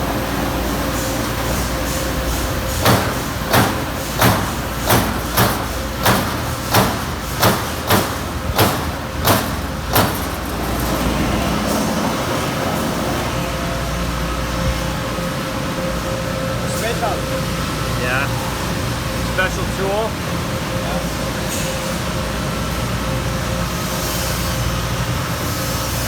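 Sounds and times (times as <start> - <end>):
punch press humming: 1.8 - 12.0
sharp punch hits on sheet metal: 2.7 - 10.4.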